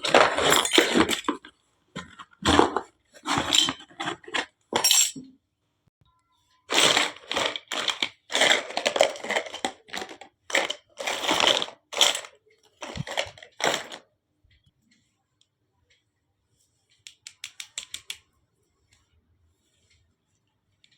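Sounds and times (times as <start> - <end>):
packaging crunching: 6.7 - 12.2.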